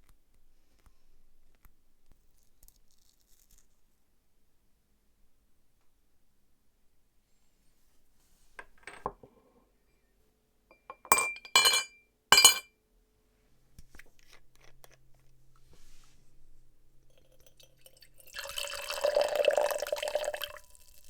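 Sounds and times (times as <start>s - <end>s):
glass-like clinks: 10.7s - 12.7s.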